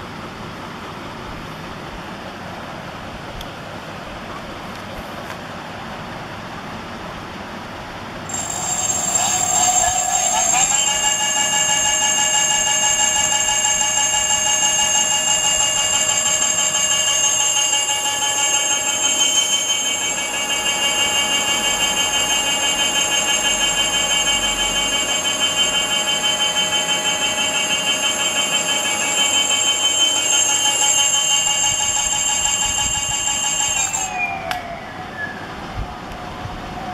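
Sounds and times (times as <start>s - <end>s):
electric hub motor whine: 8.2s - 36.9s.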